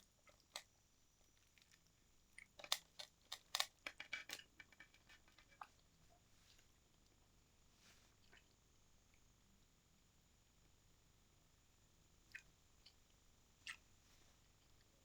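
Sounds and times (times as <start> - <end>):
short clicks and crunches: 2.6 - 4.5.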